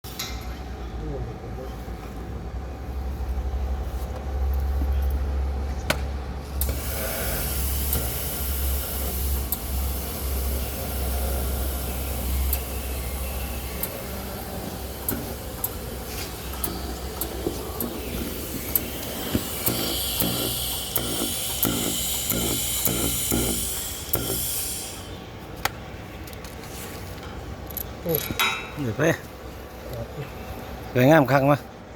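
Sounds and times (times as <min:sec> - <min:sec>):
arc welding crackling: 0:06.6 - 0:25.2.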